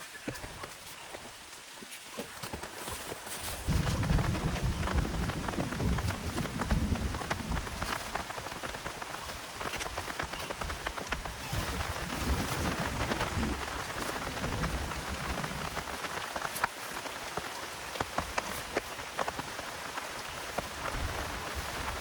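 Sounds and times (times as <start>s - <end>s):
heavy rain falling: 3.6s - 22.0s
raindrops striking sharply: 3.6s - 22.0s.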